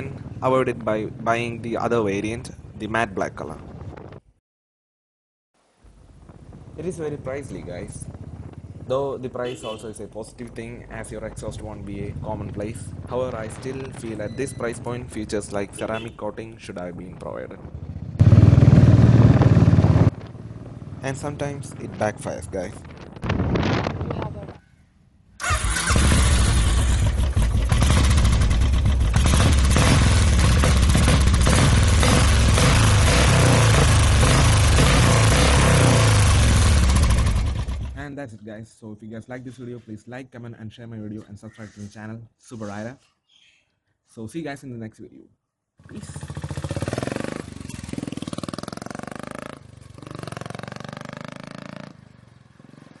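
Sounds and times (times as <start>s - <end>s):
motorcycle engine thumping exhaust: 8.1s - 8.9s, 17.6s - 21.0s, 26.0s - 38.0s, 45.9s - 52.1s
motorcycle engine thudding: 26.9s - 32.4s.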